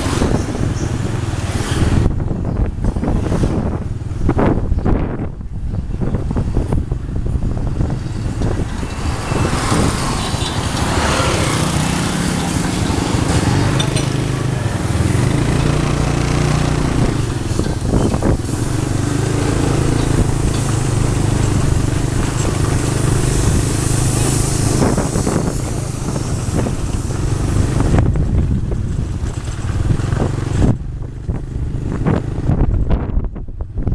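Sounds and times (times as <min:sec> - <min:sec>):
road noise rushing: 0:00.0 - 0:33.9
motorcycle engine running: 0:07.1 - 0:33.9.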